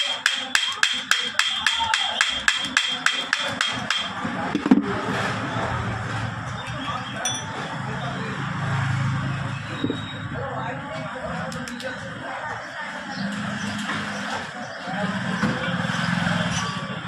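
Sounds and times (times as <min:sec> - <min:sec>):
hammer tapping metal: 0:00.0 - 0:04.7.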